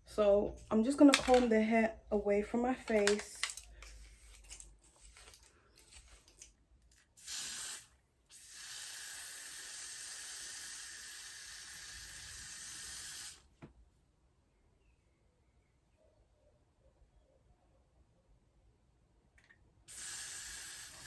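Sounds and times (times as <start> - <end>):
spray hissing: 7.2 - 13.4, 19.9 - 21.0.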